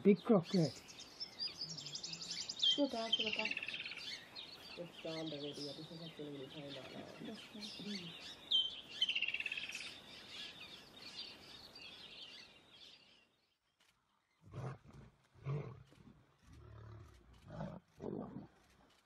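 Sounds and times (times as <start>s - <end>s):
birds chirping and calling: 0.0s - 13.5s.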